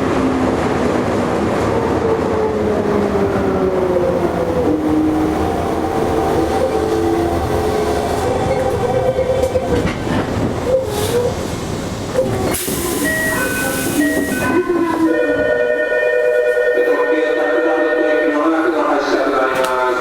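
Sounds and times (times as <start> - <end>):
wheel and track rumble: 0.9 - 15.1
hiss: 12.4 - 14.4.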